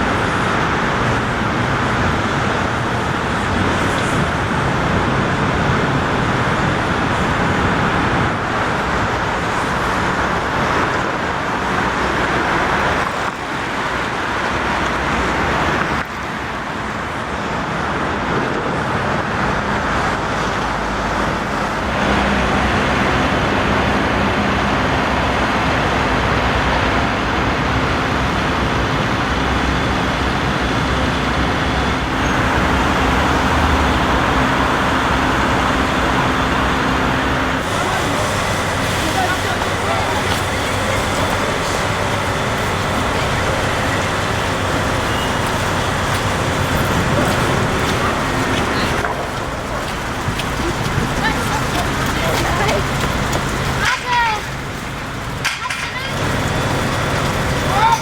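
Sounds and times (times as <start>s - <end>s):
road traffic roar: 0.0s - 58.0s
low engine hum: 19.5s - 58.0s.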